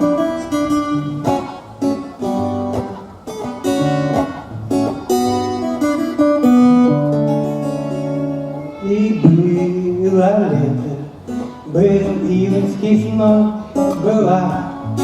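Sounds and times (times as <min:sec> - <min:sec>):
acoustic guitar chords: 0:00.0 - 0:15.0
low bass notes: 0:09.2 - 0:10.2.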